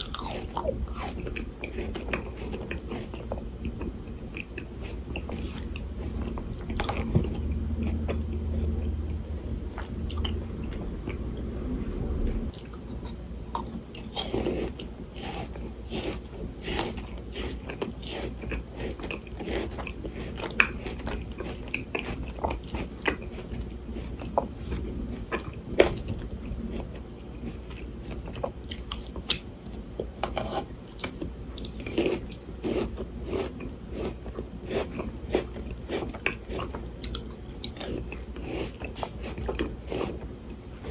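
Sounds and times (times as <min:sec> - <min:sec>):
frozen grapes crunching: 0:00.0 - 0:03.3
low steady hum: 0:00.0 - 0:40.9.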